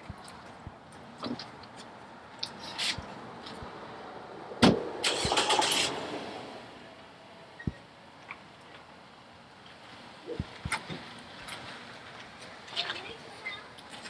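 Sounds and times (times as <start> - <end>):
car starting up: 4.7 - 6.9.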